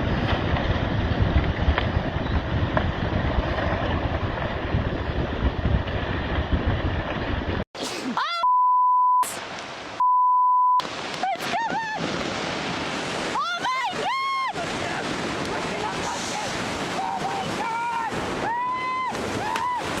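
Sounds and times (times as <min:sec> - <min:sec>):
wind and water buffeting microphone: 0:00.0 - 0:07.6, 0:10.8 - 0:20.0
high censor bleeps: 0:07.9 - 0:09.4, 0:10.0 - 0:10.8
excited shouting: 0:13.3 - 0:14.7, 0:16.2 - 0:19.8.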